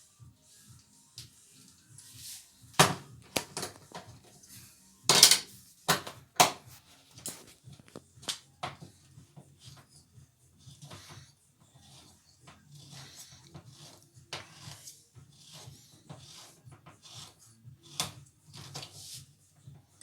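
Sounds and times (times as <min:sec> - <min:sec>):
dishes and utensils clattering: 0:05.1 - 0:06.6, 0:07.2 - 0:08.8.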